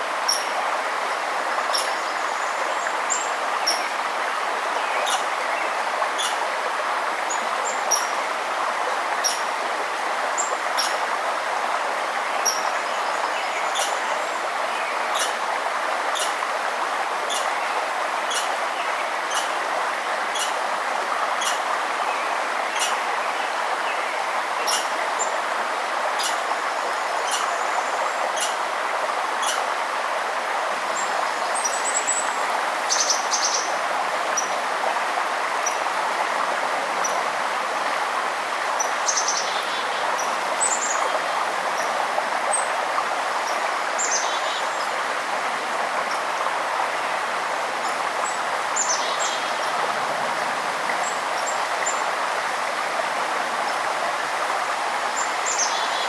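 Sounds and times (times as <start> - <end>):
flowing water: 0.0 - 56.0
songbirds chirping and trilling: 4.7 - 6.5, 12.2 - 15.4, 16.1 - 16.5, 17.3 - 19.6, 20.3 - 25.5, 26.2 - 28.7.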